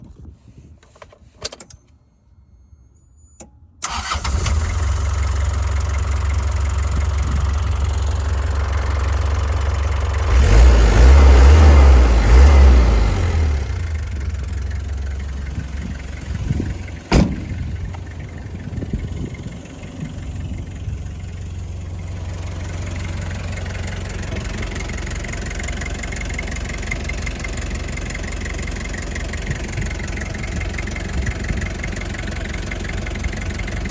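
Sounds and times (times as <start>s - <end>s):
diesel engine starting and idling: 3.8s - 33.9s
engine revving: 8.7s - 14.6s.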